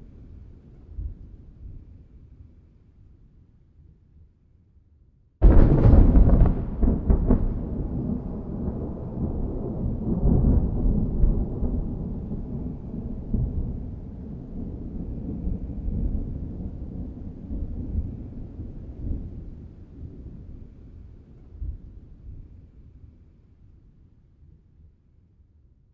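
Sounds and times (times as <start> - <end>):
thunder crack and rumble: 5.4 - 22.5.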